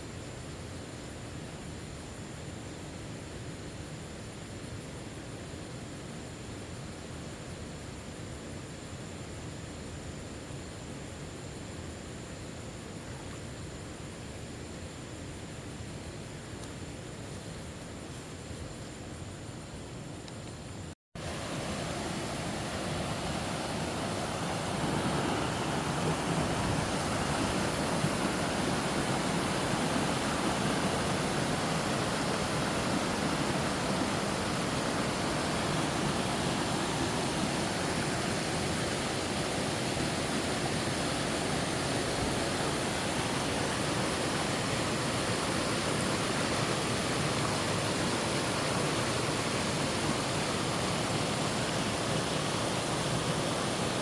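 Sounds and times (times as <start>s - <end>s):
waterfall rushing: 21.2s - 54.0s.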